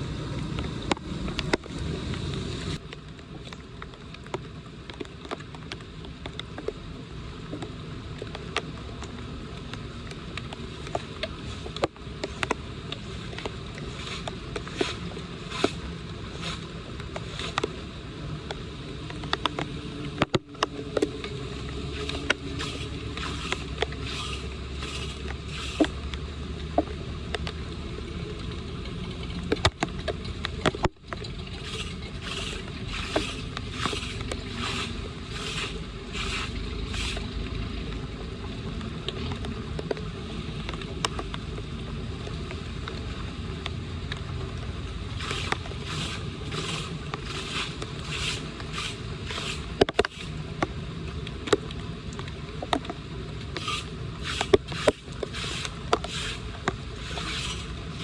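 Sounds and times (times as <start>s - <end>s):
water washing: 10.5s - 18.3s, 21.2s - 26.0s, 31.2s - 37.6s, 45.0s - 50.5s, 53.5s - 58.0s
scraping strokes: 11.4s - 17.7s, 21.9s - 26.0s, 31.5s - 37.3s, 45.2s - 50.4s, 53.6s - 58.0s.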